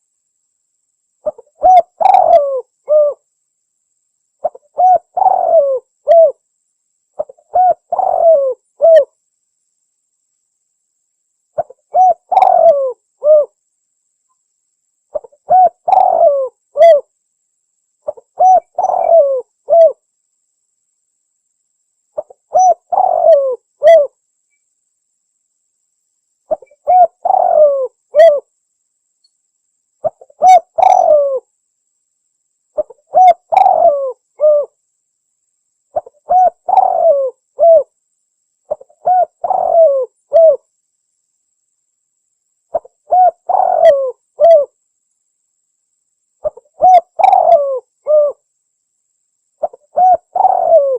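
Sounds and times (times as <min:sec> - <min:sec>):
dove cooing: 0:01.2 - 0:03.2, 0:04.4 - 0:06.4, 0:07.2 - 0:09.1, 0:11.6 - 0:13.6, 0:15.1 - 0:17.1, 0:18.0 - 0:20.0, 0:22.2 - 0:24.1, 0:26.5 - 0:28.5, 0:30.0 - 0:31.5, 0:32.8 - 0:34.8, 0:36.0 - 0:37.9, 0:38.7 - 0:40.6, 0:42.7 - 0:44.8, 0:46.4 - 0:48.4, 0:49.6 - 0:50.9.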